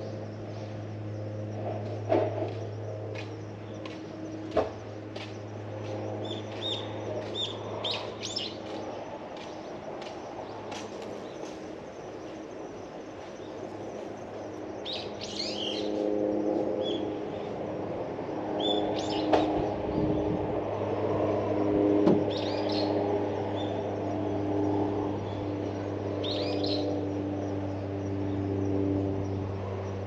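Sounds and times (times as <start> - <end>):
small birds chirping: 0.0 - 16.0, 22.3 - 30.0
low engine hum: 0.0 - 30.0.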